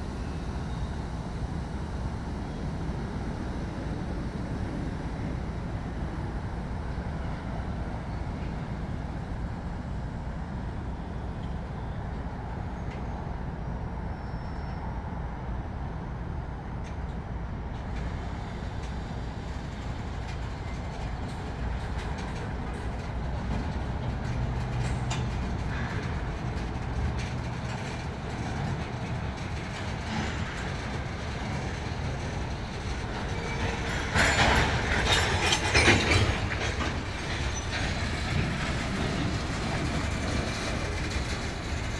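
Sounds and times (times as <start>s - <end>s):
miniature steam train rumbling: 0.0s - 41.9s.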